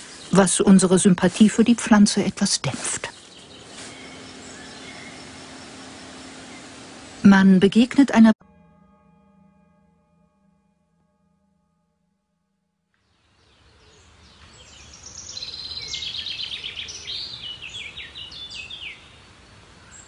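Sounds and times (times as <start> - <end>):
outdoor ambience: 0.0 - 20.0
songbird trilling and whistling: 3.0 - 5.8, 14.4 - 19.0.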